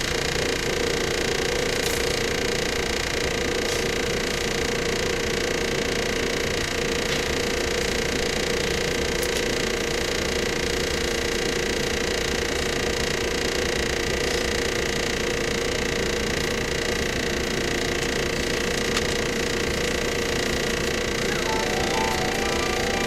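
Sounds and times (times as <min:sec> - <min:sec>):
train motor whine: 0:21.0 - 0:23.0.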